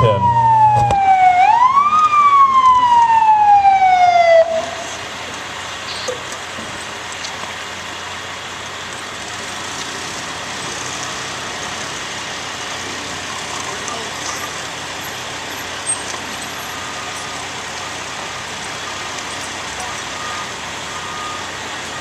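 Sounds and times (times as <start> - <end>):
indistinct voices: 0.0 - 1.0
heavy vehicle engine idling: 0.0 - 22.0.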